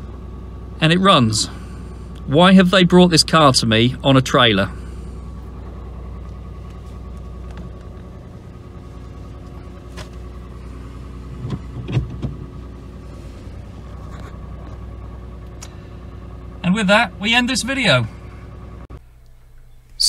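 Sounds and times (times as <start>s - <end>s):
car engine idling: 0.0s - 20.0s
engine knocks: 1.8s - 19.0s.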